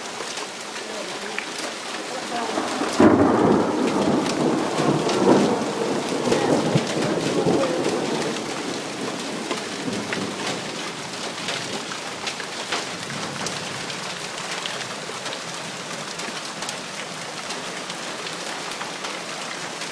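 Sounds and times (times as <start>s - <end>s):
heavy rain falling: 0.0s - 19.9s
thunder rumble: 1.8s - 14.3s.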